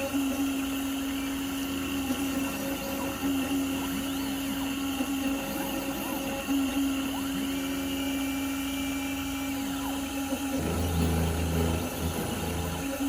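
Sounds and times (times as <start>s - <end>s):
carving machine motor running: 0.0s - 13.0s
deep hum: 10.6s - 13.0s.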